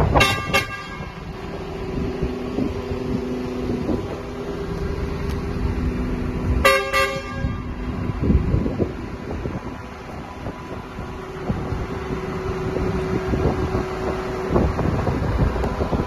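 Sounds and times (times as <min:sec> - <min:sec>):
truck horn toots: 0:00.0 - 0:01.3, 0:06.6 - 0:07.8
truck engine humming: 0:00.0 - 0:16.0.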